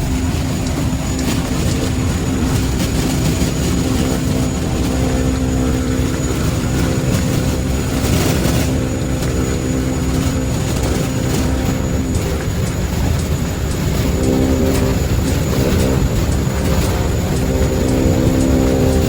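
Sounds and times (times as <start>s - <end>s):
thin high whine: 0.0s - 19.0s
turboprop engine droning: 0.0s - 19.0s.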